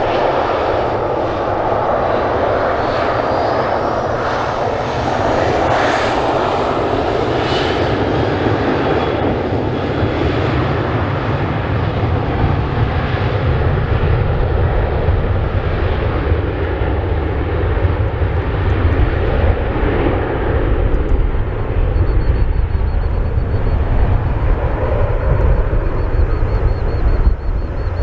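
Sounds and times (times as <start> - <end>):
jet engines roaring: 0.0 - 28.0
high whine sliding in pitch: 22.0 - 28.0.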